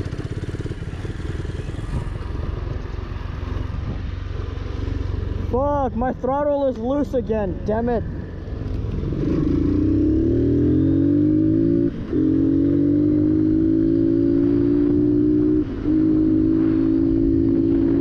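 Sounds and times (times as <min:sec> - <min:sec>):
motorcycle engine accelerating: 0:00.0 - 0:04.0, 0:08.6 - 0:18.0.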